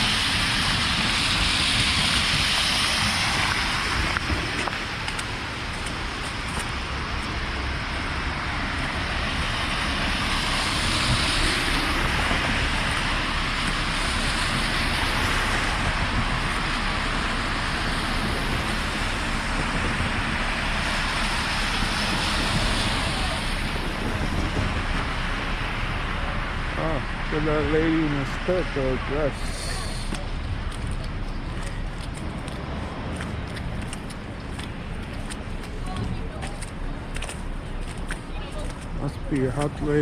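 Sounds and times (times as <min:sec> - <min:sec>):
tyres hissing through slush: 0:25.4 - 0:30.4.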